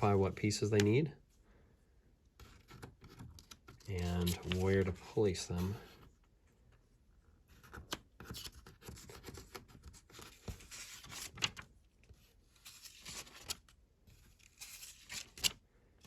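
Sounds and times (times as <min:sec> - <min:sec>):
paper pages rustling: 0:02.4 - 0:06.1, 0:07.6 - 0:15.6.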